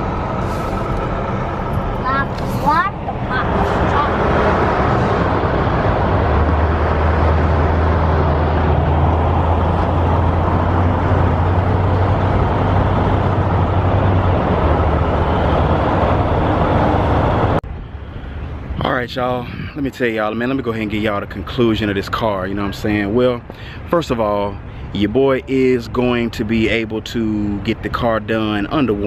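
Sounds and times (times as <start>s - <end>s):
low drone: 0.0s - 18.8s
road and engine noise: 0.0s - 29.0s.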